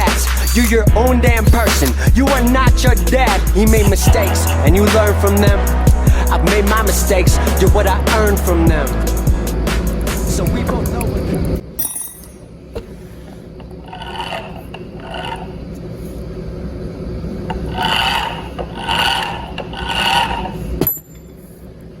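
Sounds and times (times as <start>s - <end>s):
drilling machine humming: 0.0s - 11.5s, 17.0s - 20.8s.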